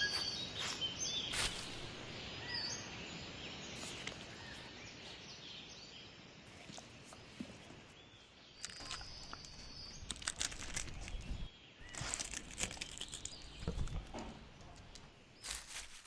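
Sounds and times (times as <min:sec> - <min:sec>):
faint bird chirps: 0:00.0 - 0:13.9
dry rustling and crackling: 0:08.6 - 0:16.0.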